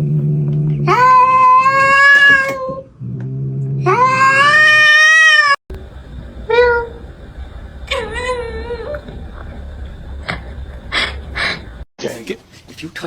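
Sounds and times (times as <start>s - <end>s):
cat meowing: 3.9s - 5.6s, 7.8s - 9.2s
low steady hum: 5.7s - 11.9s.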